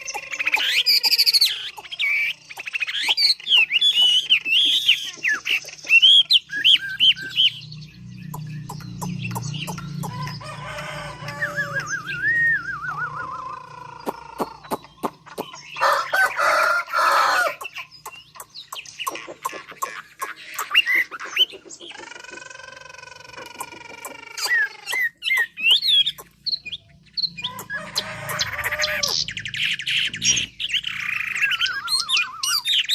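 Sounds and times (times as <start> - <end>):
songbird singing whistles and trills: 0.0 - 10.4, 11.2 - 16.4, 23.1 - 32.9.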